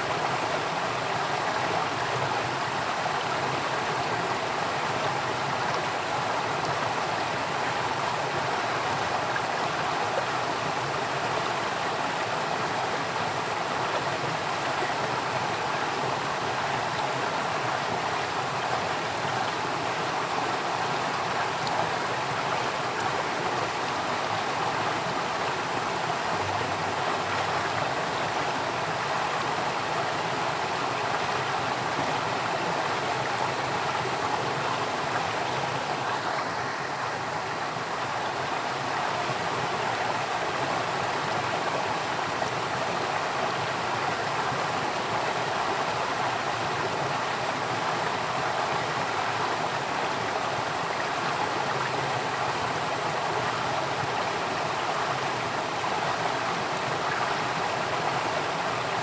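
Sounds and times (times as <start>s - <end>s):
stream water rushing and babbling: 0.0s - 59.0s.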